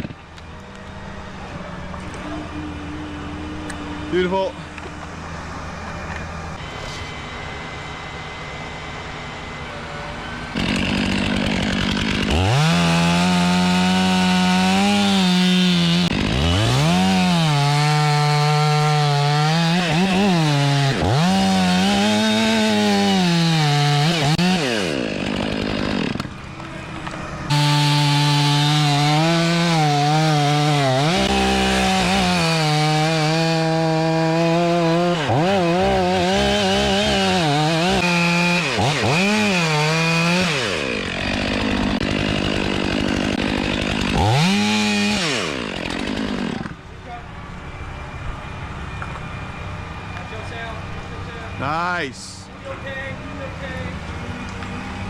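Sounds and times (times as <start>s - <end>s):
chainsaw cutting wood: 0.0s - 0.9s, 10.5s - 46.8s.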